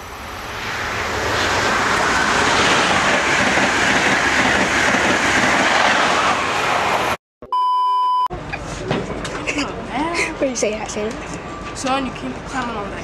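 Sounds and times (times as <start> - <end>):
high-speed train passing: 0.0 - 7.2.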